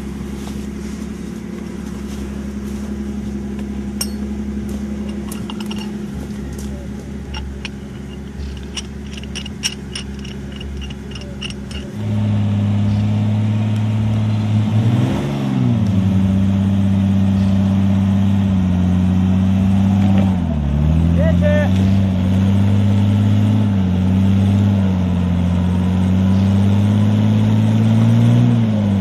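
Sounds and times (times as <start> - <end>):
off-road vehicle engine running: 0.0 - 29.0
light clicking and rattling: 3.5 - 12.0.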